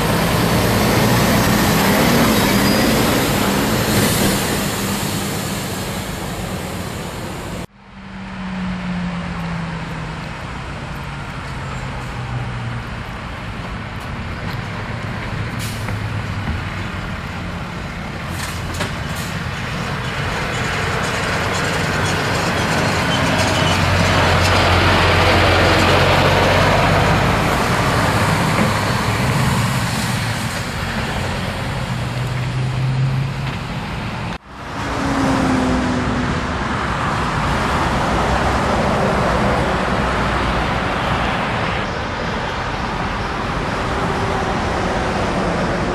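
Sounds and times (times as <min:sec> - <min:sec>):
road noise: 0:00.0 - 0:45.9.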